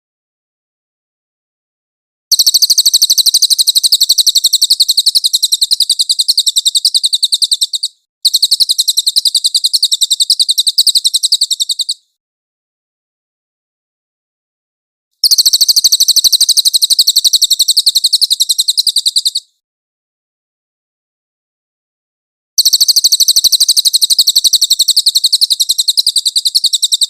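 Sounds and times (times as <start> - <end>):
bird singing high trills: 2.3 - 12.1, 22.6 - 27.0.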